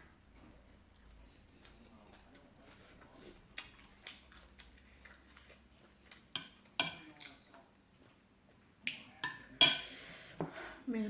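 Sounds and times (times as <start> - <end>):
utensils clinking against dishes: 9.2 - 10.0.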